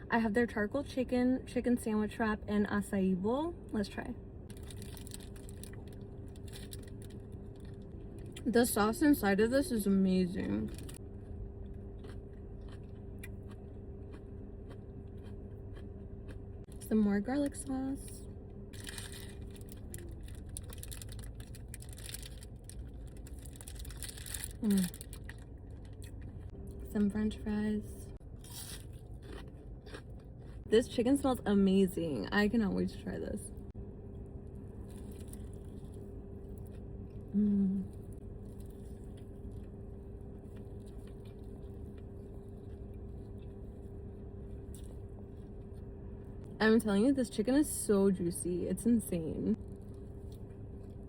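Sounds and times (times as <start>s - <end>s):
low background rumble: 0.0s - 51.0s
steady low hum: 0.0s - 51.0s
food being chewed: 4.5s - 8.5s, 10.7s - 16.9s, 18.8s - 26.8s, 28.4s - 30.7s, 34.1s - 46.0s
chewing and mouth clicks: 10.7s - 16.8s, 28.4s - 30.6s, 34.8s - 37.2s, 40.4s - 43.9s, 44.5s - 45.9s.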